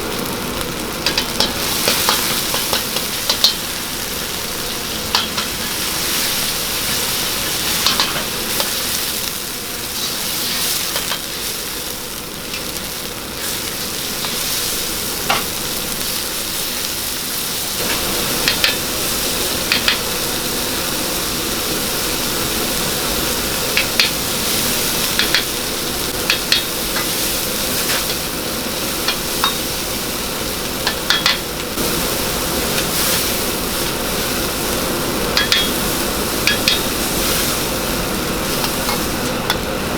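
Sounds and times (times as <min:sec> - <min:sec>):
food sizzling in hot oil: 0:00.0 - 0:39.9
metal utensil clinking on pan: 0:30.8 - 0:31.4, 0:35.4 - 0:35.8, 0:36.4 - 0:36.9.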